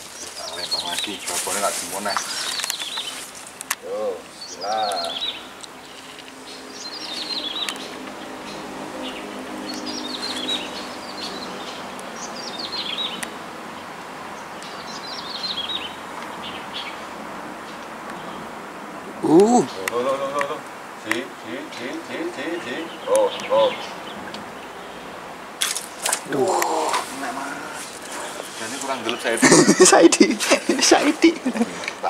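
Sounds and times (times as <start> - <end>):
small bird singing: 0.0 - 17.1, 19.2 - 25.2.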